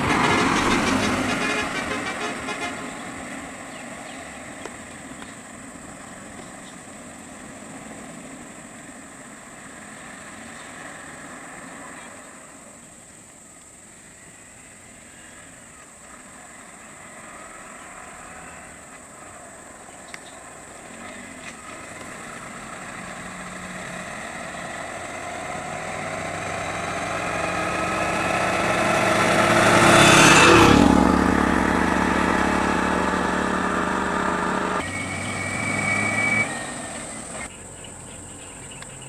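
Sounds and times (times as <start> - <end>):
vehicle engine idling: 30.7 - 34.8.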